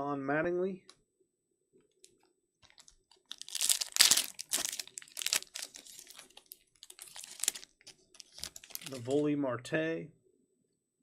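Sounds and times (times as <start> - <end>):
foil wrapper tearing and crinkling: 2.7 - 9.0.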